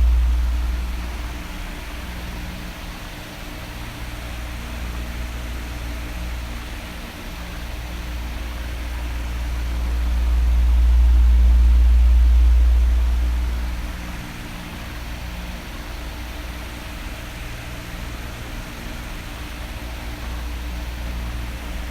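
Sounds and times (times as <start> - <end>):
electric fan blowing: 0.0 - 16.5.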